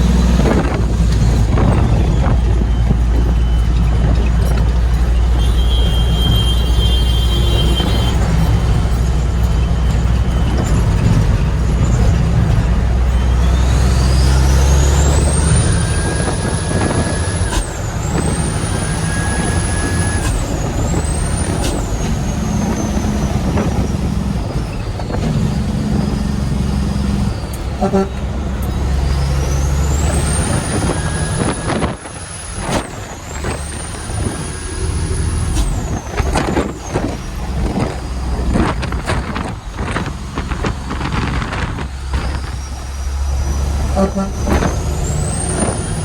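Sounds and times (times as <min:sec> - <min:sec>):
diesel truck engine rumbling: 0:00.0 - 0:46.0
high whistle: 0:05.4 - 0:08.2.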